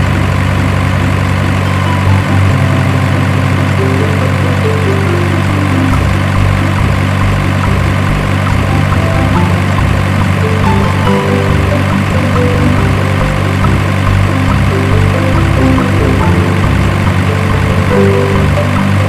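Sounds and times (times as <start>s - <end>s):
low bass drone: 0.0s - 19.0s
melody stepping down: 1.6s - 19.0s.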